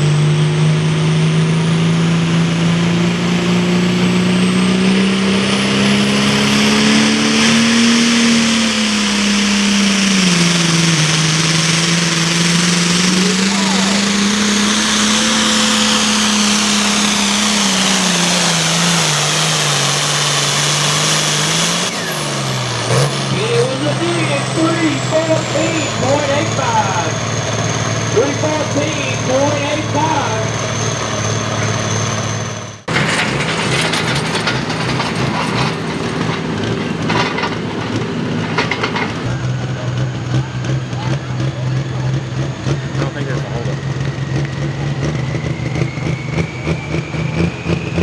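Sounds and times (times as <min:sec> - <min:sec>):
diesel tractor engine at full throttle: 0:00.0 - 0:48.0.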